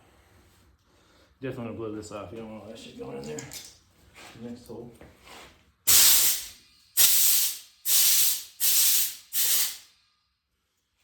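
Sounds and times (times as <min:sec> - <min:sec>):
compressed air blow gun bursts: 0:05.9 - 0:09.9.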